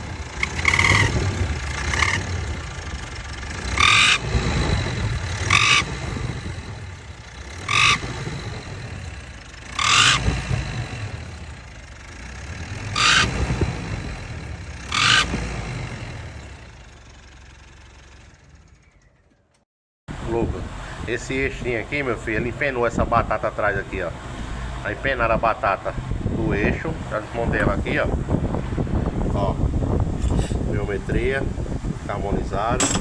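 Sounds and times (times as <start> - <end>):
turbocharger whoosh: 0.0 - 17.0
engine revving in short blips: 0.0 - 33.0.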